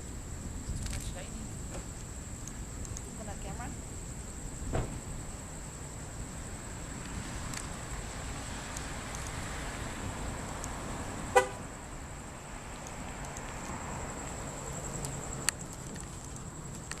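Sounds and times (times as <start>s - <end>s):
background noise: 0.0s - 17.0s
car horn toot: 11.3s - 11.6s.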